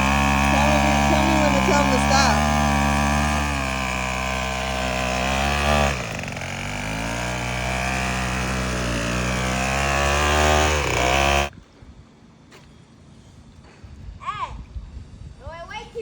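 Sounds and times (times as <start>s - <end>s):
string trimmer engine running: 0.0s - 11.5s.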